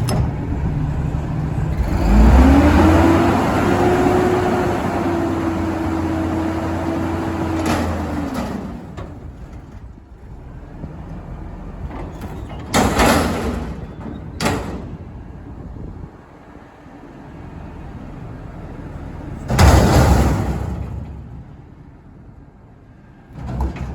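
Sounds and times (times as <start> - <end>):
garbage truck engine revving: 0.0 - 13.8.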